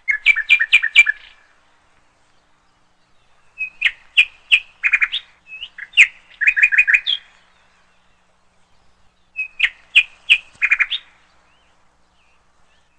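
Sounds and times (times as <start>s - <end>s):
bird chirping and whistling: 0.1s - 1.4s, 3.5s - 7.3s, 9.4s - 11.1s.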